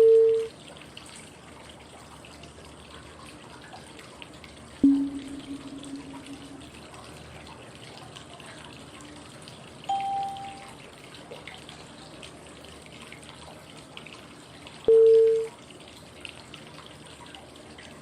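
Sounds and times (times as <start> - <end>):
flowing-water white noise: 0.0 - 18.0
short clean cue tones: 4.8 - 6.8, 9.9 - 10.6.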